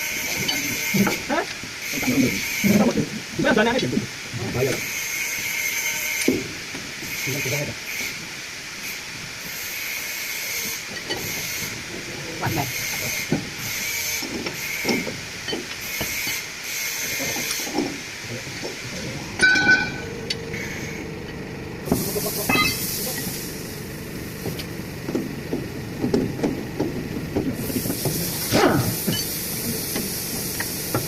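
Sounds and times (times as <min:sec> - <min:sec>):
air hissing: 0:21.8 - 0:25.2, 0:27.3 - 0:31.0.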